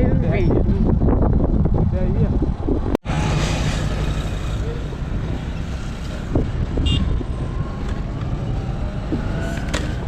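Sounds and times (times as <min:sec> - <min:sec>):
street traffic rumble: 0:00.0 - 0:10.0
wind on microphone: 0:00.0 - 0:10.0.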